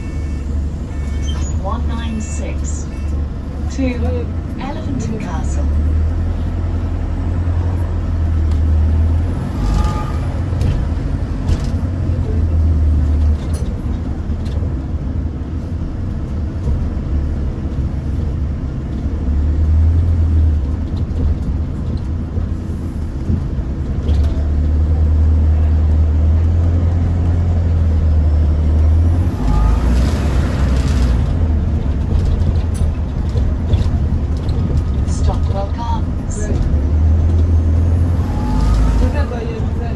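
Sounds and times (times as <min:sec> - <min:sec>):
bus engine drone: 0:00.0 - 0:39.9.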